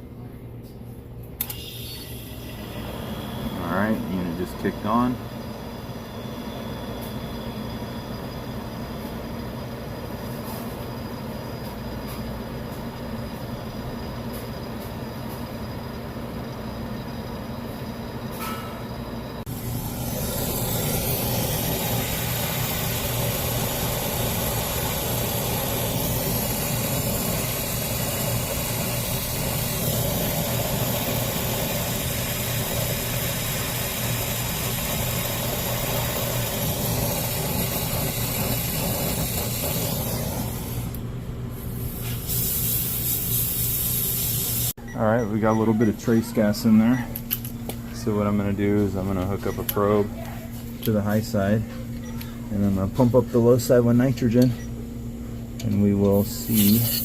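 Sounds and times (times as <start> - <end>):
refrigeration unit humming: 0.0 - 57.0
steady hiss: 19.4 - 41.0.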